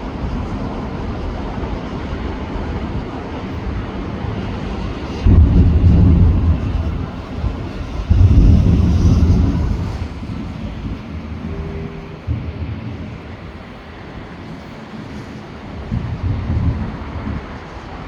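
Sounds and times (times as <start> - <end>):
fireworks booming: 5.2 - 13.7, 15.9 - 17.6.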